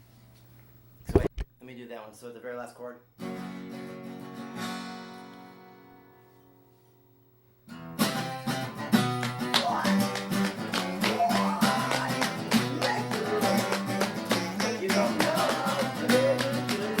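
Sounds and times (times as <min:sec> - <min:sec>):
acoustic guitar chords: 0:03.2 - 0:17.0.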